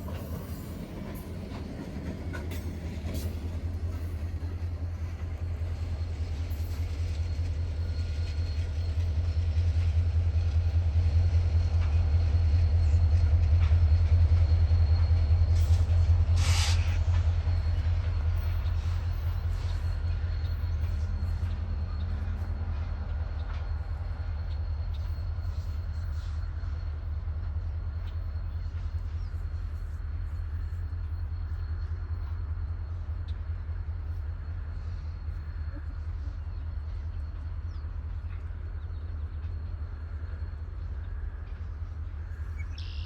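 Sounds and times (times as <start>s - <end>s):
diesel locomotives rumbling: 0.0s - 43.0s
short hiss: 16.4s - 17.0s.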